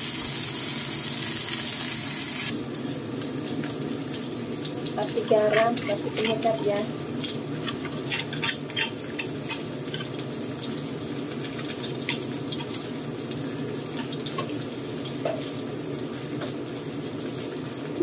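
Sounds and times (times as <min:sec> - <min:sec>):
sharp oil crackles: 0:00.0 - 0:18.0
vegetables sizzling in a wok: 0:00.0 - 0:18.0.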